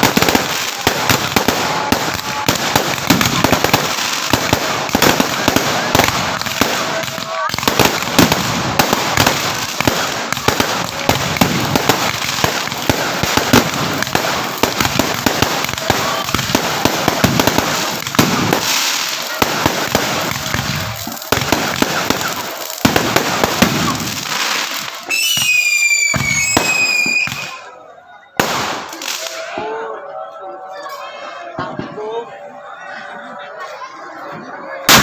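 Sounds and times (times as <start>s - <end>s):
fireworks cracking and banging: 0.0s - 27.7s, 28.4s - 29.7s, 34.3s - 35.0s
whistling tone: 25.1s - 28.4s.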